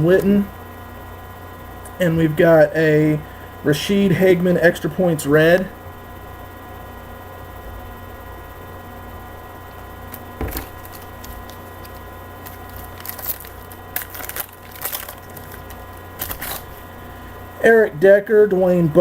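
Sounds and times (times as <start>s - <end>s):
foil card pack crinkling: 10.1s - 17.0s.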